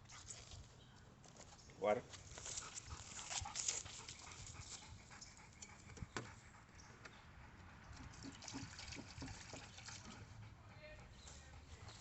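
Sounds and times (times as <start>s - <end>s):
dog panting: 2.4s - 12.0s.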